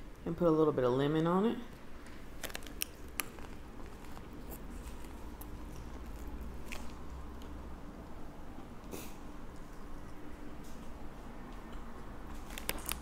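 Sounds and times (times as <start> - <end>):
person chewing food: 2.0 - 7.8.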